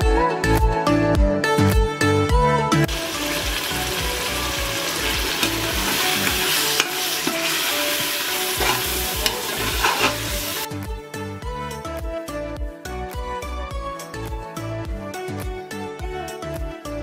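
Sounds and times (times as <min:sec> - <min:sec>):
meat sizzling in a pot: 0:02.9 - 0:10.7
metal ladle stirring: 0:04.9 - 0:10.7
ladle clinking against pot: 0:08.6 - 0:10.3.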